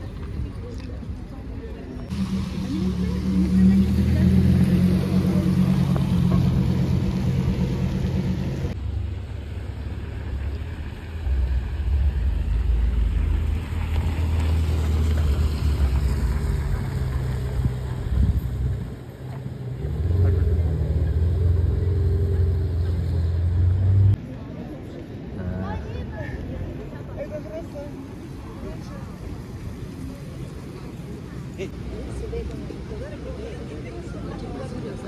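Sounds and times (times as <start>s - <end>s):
sports car engine driving off: 2.1s - 8.8s
sports car engine pulling away: 2.1s - 8.8s, 10.6s - 24.2s.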